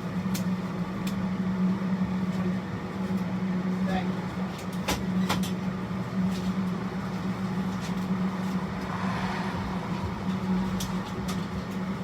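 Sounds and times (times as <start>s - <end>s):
machine hum: 5.7s - 12.0s.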